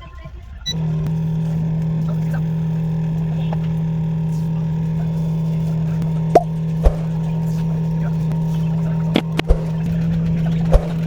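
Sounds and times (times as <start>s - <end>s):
electric machine hum: 0.5s - 11.0s
sharp clicks: 6.0s - 7.3s, 9.1s - 9.9s, 10.7s - 11.0s.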